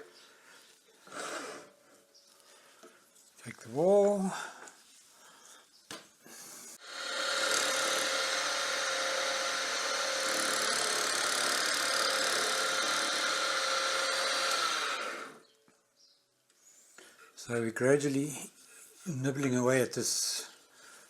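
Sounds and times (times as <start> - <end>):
wood lathe cutting wood: 1.1 - 1.7, 6.8 - 15.4.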